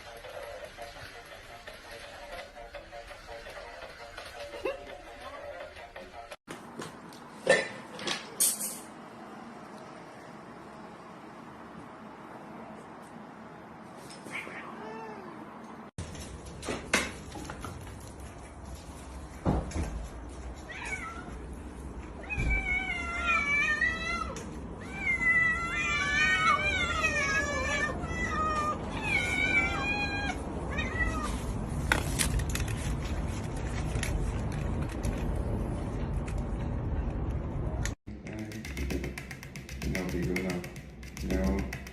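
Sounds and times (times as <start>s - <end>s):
cat meowing: 14.3s - 15.5s, 20.6s - 21.5s, 22.2s - 31.4s.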